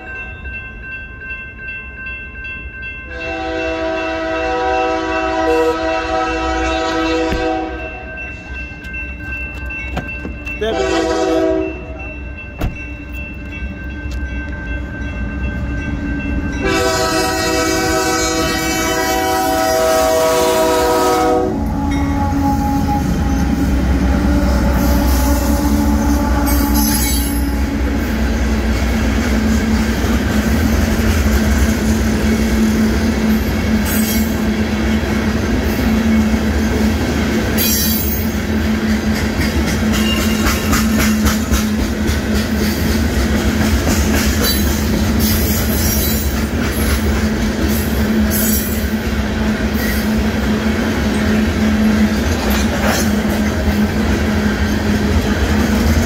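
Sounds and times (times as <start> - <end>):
crossing bell ringing: 0.0 - 43.0, 43.9 - 49.2
train engine drone: 0.0 - 56.0
locomotive horn blast: 3.1 - 8.1, 10.6 - 12.0, 16.6 - 28.2.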